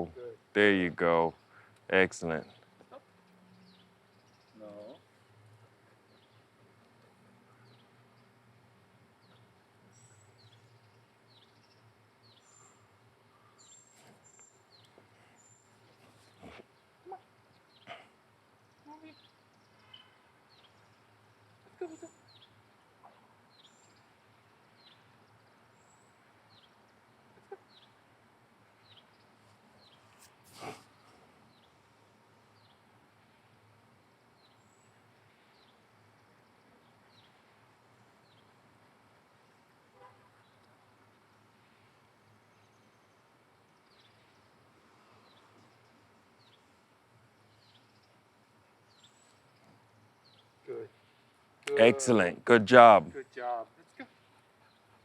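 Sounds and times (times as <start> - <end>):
rustle: 1.2 - 51.7.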